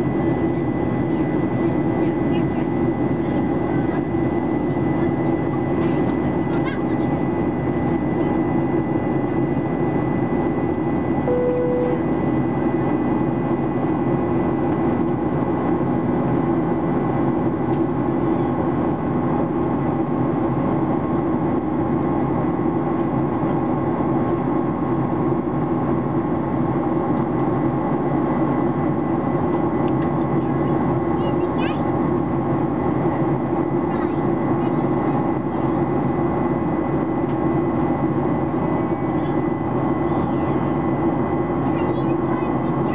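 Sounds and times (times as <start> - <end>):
short single tone: 11.2 - 12.4.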